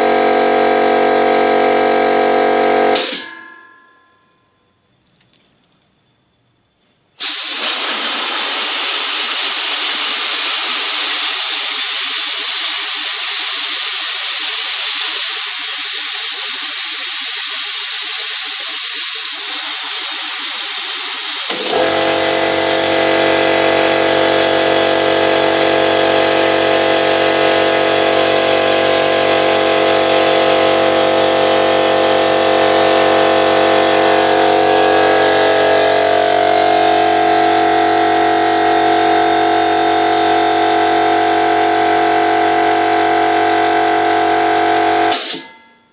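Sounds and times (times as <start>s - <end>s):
air compressor motor humming: 0.0s - 3.4s, 7.2s - 45.4s
compressed air hissing: 7.2s - 23.0s.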